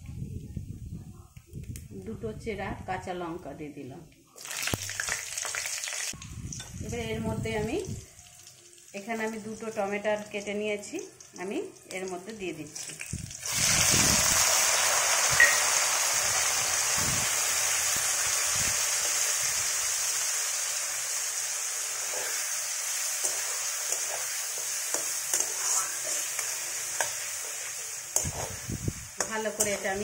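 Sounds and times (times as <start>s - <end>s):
tomatoes sizzling in hot oil: 4.4s - 30.0s
spatula scraping a metal pan: 21.9s - 22.6s, 23.2s - 28.6s.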